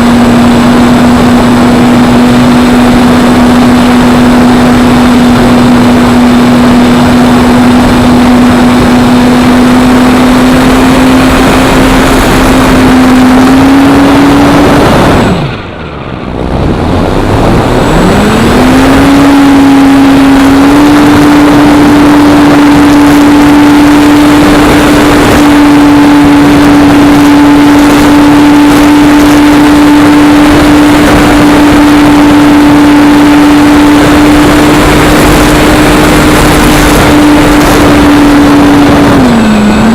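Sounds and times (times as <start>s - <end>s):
electric motor whine: 0.0s - 39.9s
wind noise: 0.0s - 39.9s.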